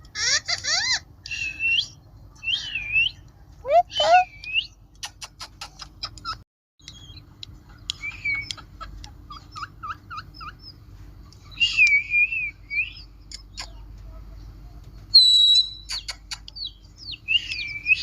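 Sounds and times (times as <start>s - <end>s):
parrot chirping: 0.2s - 7.2s, 9.3s - 10.8s, 15.2s - 18.0s.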